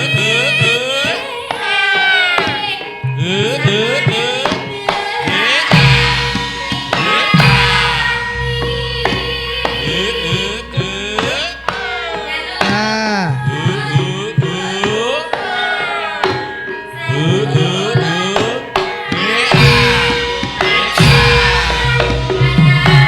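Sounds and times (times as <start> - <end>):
gamelan music: 0.0 - 23.0
person singing: 0.0 - 23.0
sustained metallic tones: 0.0 - 23.0
hand drum with sliding pitch: 4.8 - 15.6.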